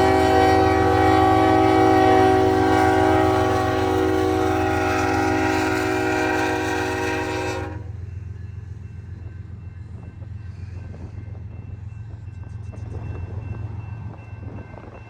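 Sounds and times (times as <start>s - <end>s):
locomotive air horn blast: 0.0s - 7.9s.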